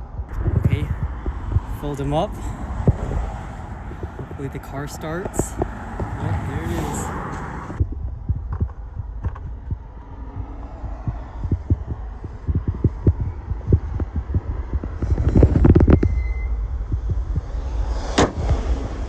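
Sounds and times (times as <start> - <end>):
car engine idling: 0.0 - 15.6.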